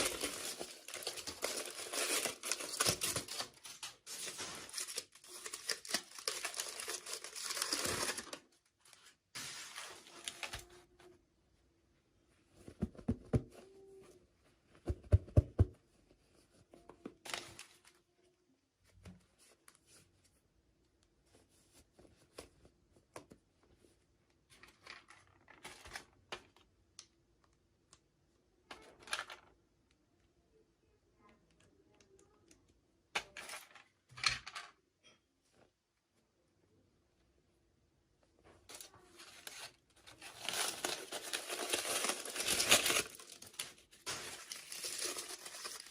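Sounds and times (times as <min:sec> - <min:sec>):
packaging rustling and scraping: 0:00.0 - 0:10.7, 0:38.7 - 0:45.9.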